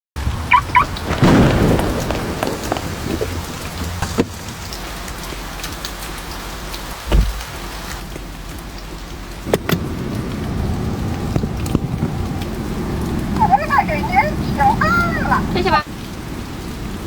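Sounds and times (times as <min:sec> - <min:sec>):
heavy rain on a car: 0:00.2 - 0:17.0
low thump: 0:07.1 - 0:07.5, 0:11.3 - 0:12.4.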